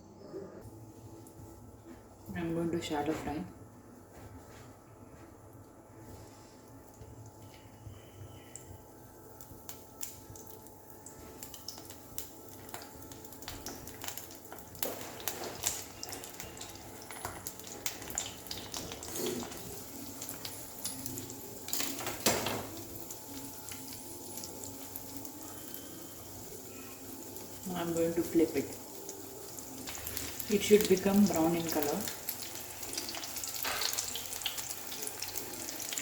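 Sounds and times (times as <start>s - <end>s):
food sizzling in oil: 8.8s - 36.0s.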